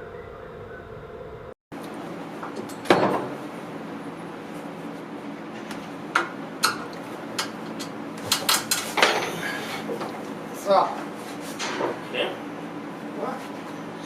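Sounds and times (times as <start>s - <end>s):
tools and parts clattering: 6.6s - 9.4s.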